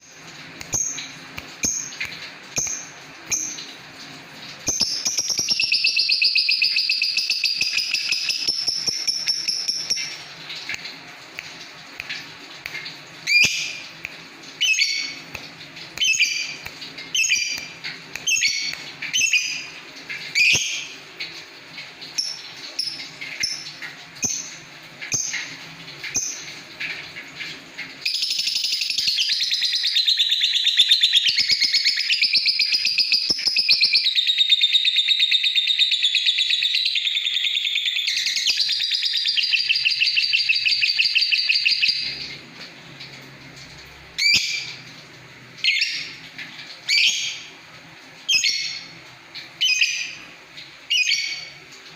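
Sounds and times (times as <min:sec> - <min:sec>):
bird chirping: 0:04.6 - 0:10.2, 0:16.0 - 0:19.7, 0:28.0 - 0:42.4, 0:50.9 - 0:51.6.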